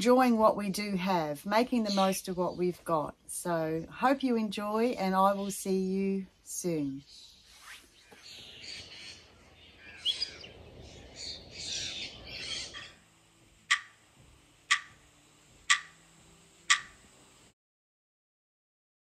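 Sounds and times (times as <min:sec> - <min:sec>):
birds chirping: 0:01.6 - 0:02.8, 0:06.9 - 0:15.1
sharp clock ticks: 0:13.7 - 0:14.0, 0:14.7 - 0:15.0, 0:15.6 - 0:16.0, 0:16.7 - 0:17.0.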